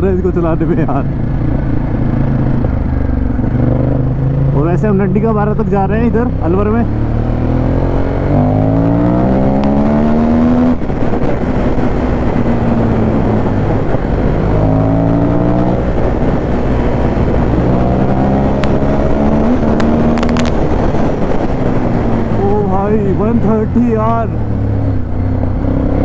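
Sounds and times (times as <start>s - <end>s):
motorcycle engine accelerating: 0.0s - 26.0s
wind noise: 6.2s - 26.0s.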